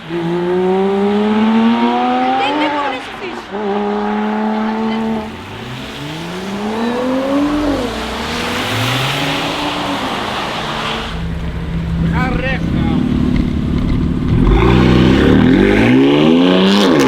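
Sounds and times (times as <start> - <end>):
car engine accelerating: 0.0 - 17.0
tyres hissing on wet road: 3.2 - 16.2.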